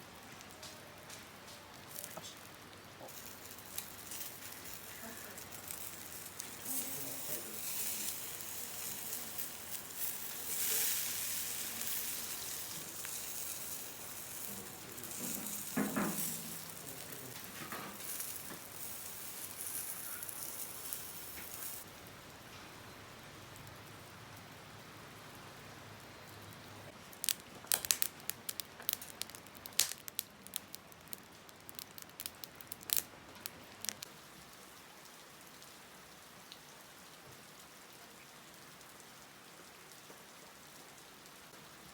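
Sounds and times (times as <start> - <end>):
food sizzling in a pan: 1.9 - 21.9.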